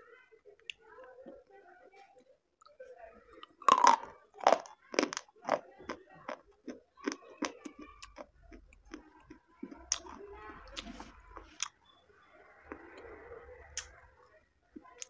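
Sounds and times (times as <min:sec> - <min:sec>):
person crunching and chewing: 0:03.4 - 0:11.8.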